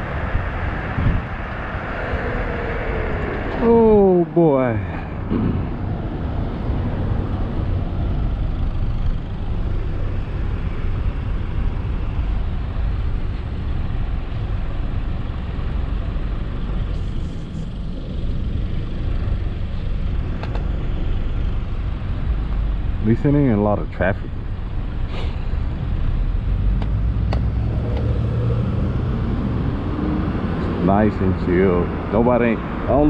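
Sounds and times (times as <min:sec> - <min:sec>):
wind rushing: 0:00.0 - 0:08.5
road rush: 0:00.0 - 0:33.0.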